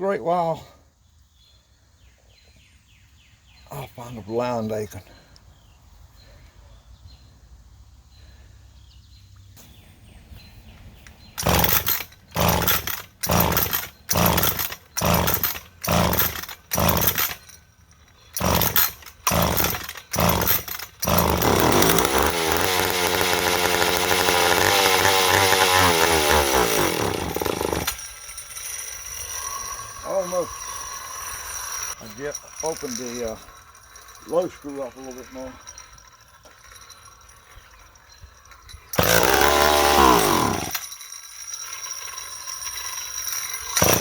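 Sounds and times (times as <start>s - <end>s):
starter cord pulls: 11.1s - 17.6s, 18.3s - 28.1s, 38.9s - 40.9s, 43.4s - 44.0s
chainsaw engine running: 11.3s - 17.6s, 18.3s - 37.0s, 38.9s - 41.0s, 42.7s - 44.0s.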